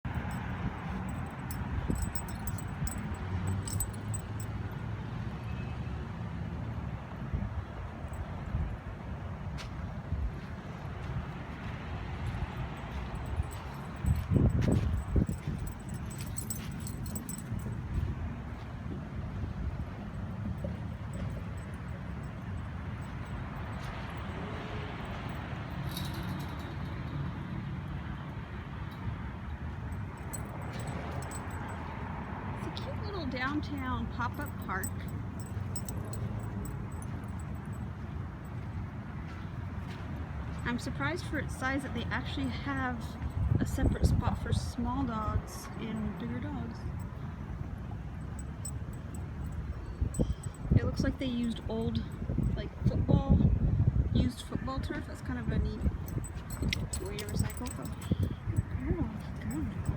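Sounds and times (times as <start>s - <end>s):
light metallic jingling: 0.0s - 5.0s, 12.2s - 18.7s, 19.4s - 28.2s, 29.7s - 53.0s, 54.2s - 59.9s
road traffic rumble: 0.0s - 59.9s
faint clink: 0.1s - 4.6s, 12.8s - 18.1s, 20.4s - 27.3s, 29.9s - 32.0s, 32.7s - 38.0s, 48.2s - 50.9s, 55.8s - 59.9s.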